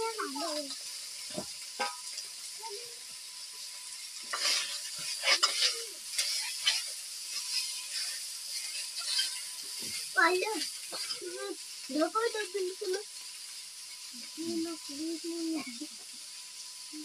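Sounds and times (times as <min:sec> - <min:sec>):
meat sizzling in hot oil: 0:00.0 - 0:17.0
metal spoon scraping a pan: 0:01.2 - 0:02.3, 0:04.0 - 0:11.3.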